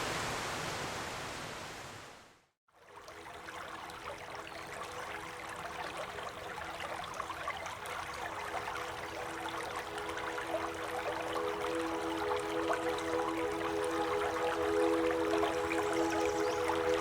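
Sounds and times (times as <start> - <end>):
water splashing and trickling: 2.7 - 17.0.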